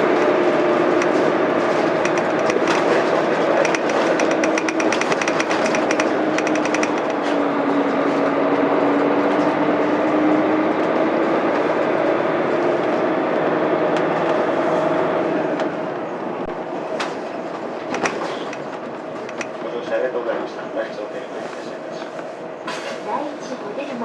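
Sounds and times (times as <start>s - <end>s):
fast ticking: 1.9s - 7.1s.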